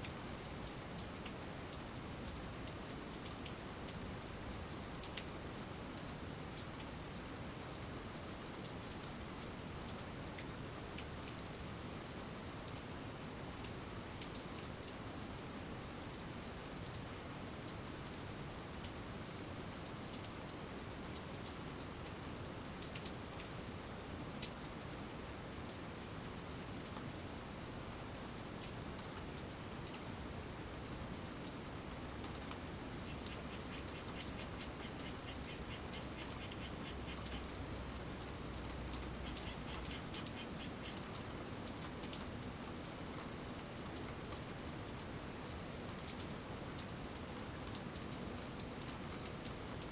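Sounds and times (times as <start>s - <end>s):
steady rain falling: 0.0s - 49.9s
raindrops tapping close by: 25.6s - 49.9s.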